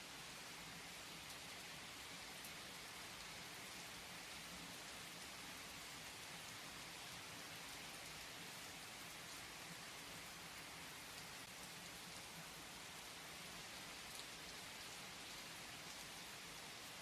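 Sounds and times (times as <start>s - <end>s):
soft rain falling: 0.0s - 17.0s.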